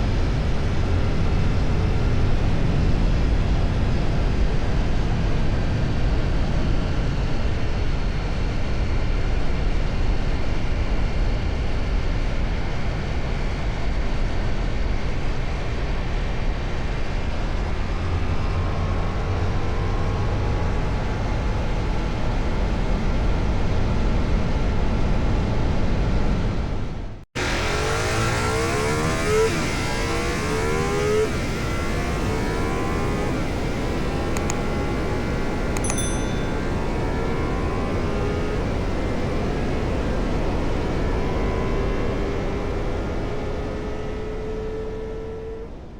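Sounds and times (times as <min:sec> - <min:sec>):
motorcycle engine cruising: 0:27.4 - 0:45.9.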